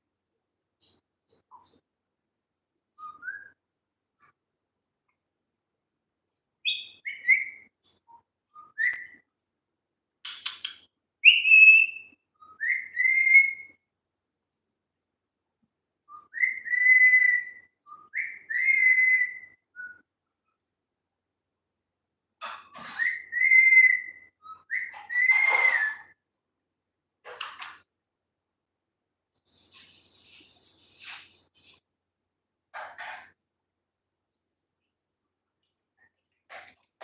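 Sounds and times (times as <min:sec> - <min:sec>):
parrot whistling: 0:11.2 - 0:13.7, 0:16.1 - 0:20.0, 0:22.9 - 0:26.1.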